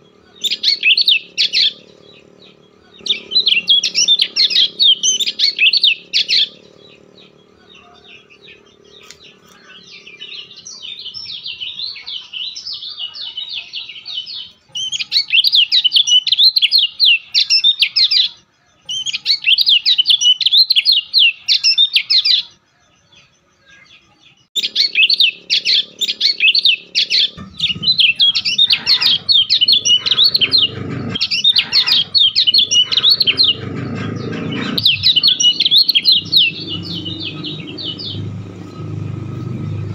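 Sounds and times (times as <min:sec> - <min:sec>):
small bird twittering: 0:00.0 - 0:22.5, 0:24.6 - 0:39.9
low rumbling and thumps: 0:27.3 - 0:39.9.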